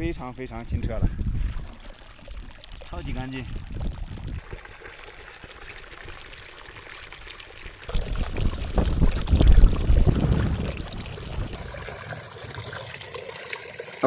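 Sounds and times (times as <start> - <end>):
mountain stream trickling: 0.0 - 14.0
water filling a bucket: 0.4 - 14.0.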